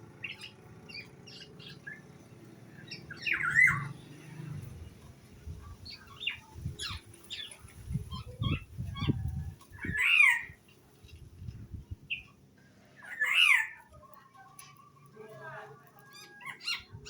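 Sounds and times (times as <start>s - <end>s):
songbirds chirping: 0.0s - 17.0s
bird harsh squawk: 9.8s - 10.6s, 13.0s - 13.9s.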